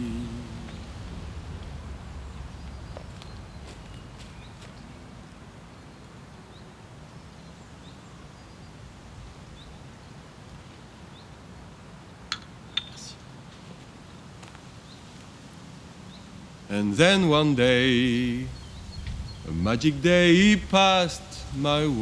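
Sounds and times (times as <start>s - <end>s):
faint bird chirps: 12.7s - 13.3s.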